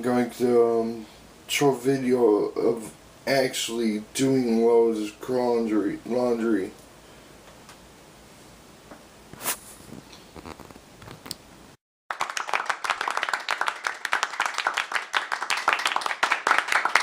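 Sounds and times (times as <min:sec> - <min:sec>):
crowd applauding: 0:12.1 - 0:17.0.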